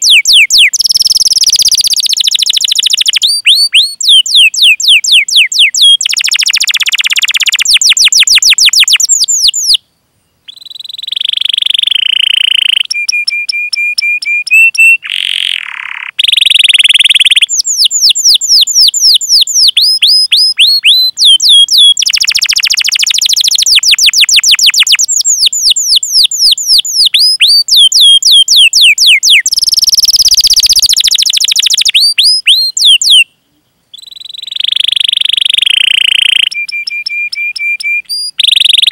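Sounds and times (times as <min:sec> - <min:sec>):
canary singing: 0:00.0 - 0:09.8, 0:10.4 - 0:38.9.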